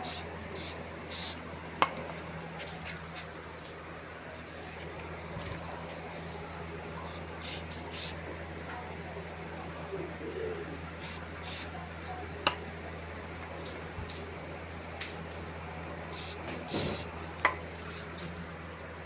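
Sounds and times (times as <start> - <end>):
aerosol can spraying: 0.0 - 1.4, 7.1 - 8.2, 11.0 - 11.7, 16.1 - 17.1.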